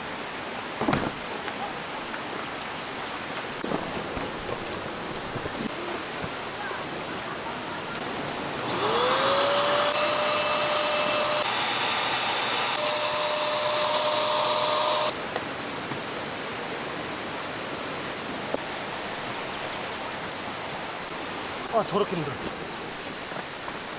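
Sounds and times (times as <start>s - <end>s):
small electric motor whining: 8.6s - 15.2s.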